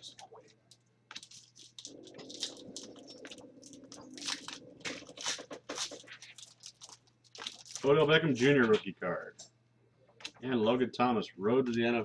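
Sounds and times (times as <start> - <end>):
cards and foil wrapper crinkling: 0.4 - 8.7.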